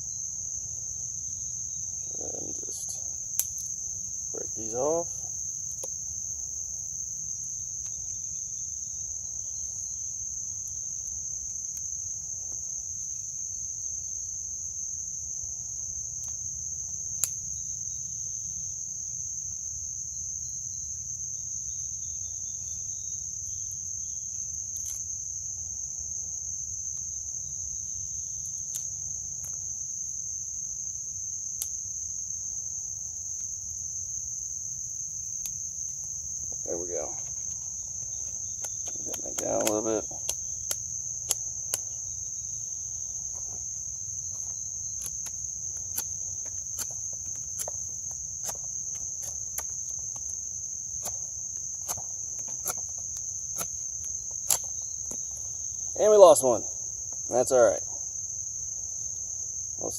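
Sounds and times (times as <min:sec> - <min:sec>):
insect chorus trilling: 0:00.0 - 0:59.9
twigs snapping: 0:03.3 - 0:03.8, 0:24.7 - 0:25.1, 0:37.2 - 0:42.3, 0:43.2 - 0:55.5.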